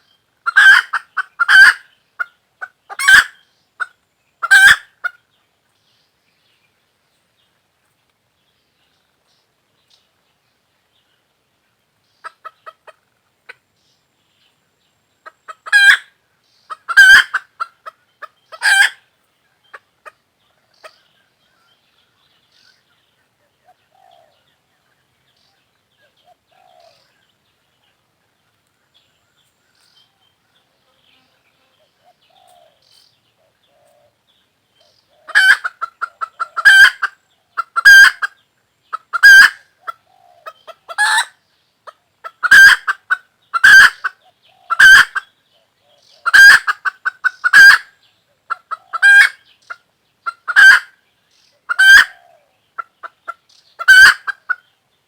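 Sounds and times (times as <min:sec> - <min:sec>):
hen clucking: 0:00.0 - 0:05.2, 0:12.2 - 0:13.6, 0:15.2 - 0:16.1, 0:16.7 - 0:21.1, 0:35.1 - 0:45.3, 0:46.1 - 0:51.0, 0:51.6 - 0:54.7.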